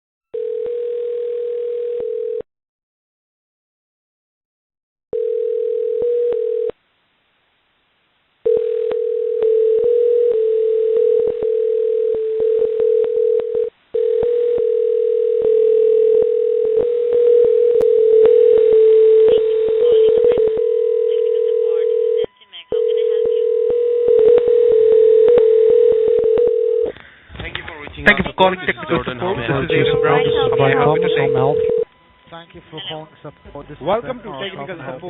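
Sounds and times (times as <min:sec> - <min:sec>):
telephone line tone: 0:00.3 - 0:02.4, 0:05.1 - 0:06.8, 0:08.4 - 0:26.9, 0:29.4 - 0:32.2.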